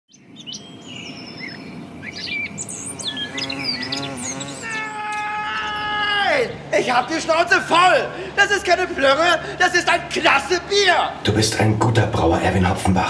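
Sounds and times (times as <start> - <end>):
small birds chirping: 0.1 - 7.6
long high pitched tone: 2.5 - 6.7.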